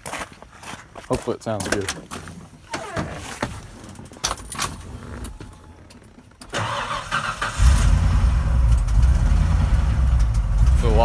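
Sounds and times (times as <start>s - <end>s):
truck engine cranking and idling: 3.2s - 11.0s.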